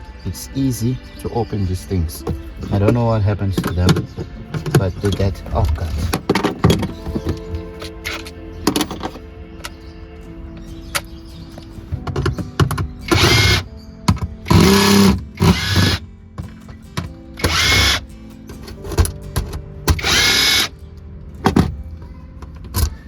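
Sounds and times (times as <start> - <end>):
cordless drill whining: 13.1 - 13.6, 14.5 - 16.0, 17.4 - 18.0, 19.9 - 20.7.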